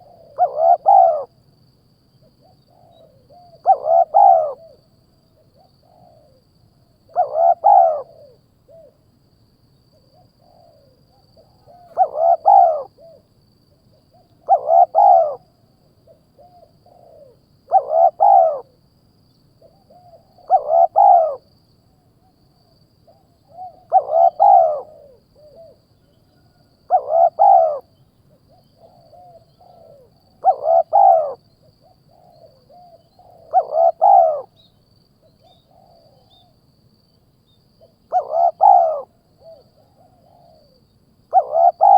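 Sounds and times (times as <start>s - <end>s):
bird call with arching notes: 11.9s - 12.9s, 17.7s - 18.6s, 20.5s - 21.4s, 23.6s - 25.0s, 26.9s - 27.8s, 33.5s - 34.5s, 38.1s - 39.1s, 41.4s - 41.9s.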